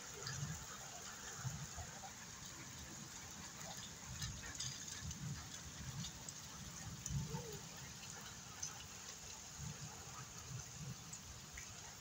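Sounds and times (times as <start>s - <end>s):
steady rain hiss: 0.0s - 12.0s
rain drop ticks: 0.1s - 1.8s, 2.4s - 11.9s
wind rumbling on microphone: 3.6s - 8.1s.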